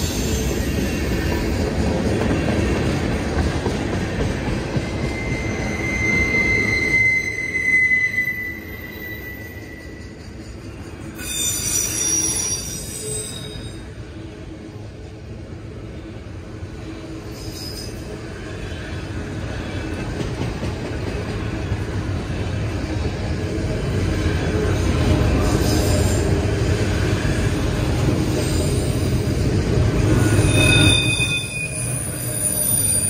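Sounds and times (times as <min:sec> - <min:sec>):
freight train rolling on rails: 0:00.0 - 0:33.0
high wheel squeal: 0:04.9 - 0:13.9, 0:17.3 - 0:18.1, 0:30.0 - 0:33.0.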